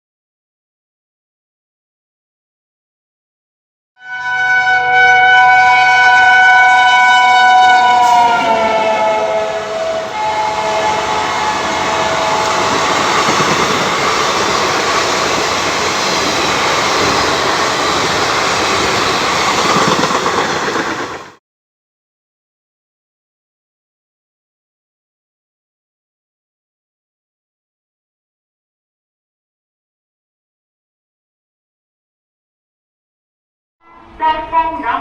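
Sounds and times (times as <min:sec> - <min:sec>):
locomotive horn: 0:04.0 - 0:15.4, 0:33.8 - 0:34.6
train rushing past: 0:04.3 - 0:21.4.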